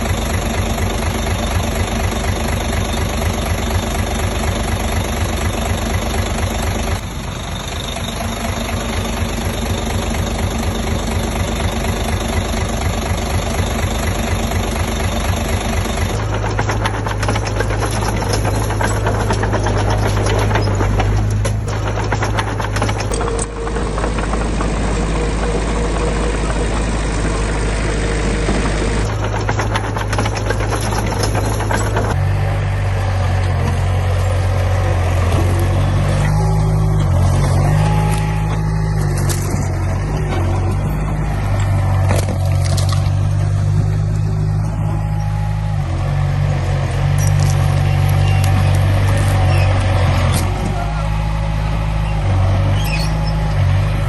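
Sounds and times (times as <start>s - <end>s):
dense clattering: 0.0s - 32.3s, 35.2s - 45.2s
diesel engine of heavy machinery: 0.0s - 54.0s.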